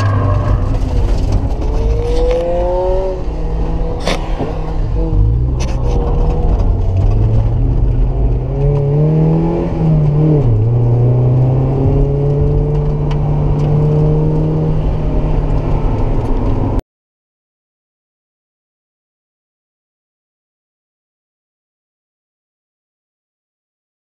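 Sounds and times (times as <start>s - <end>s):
car engine from inside cabin: 0.0s - 16.8s.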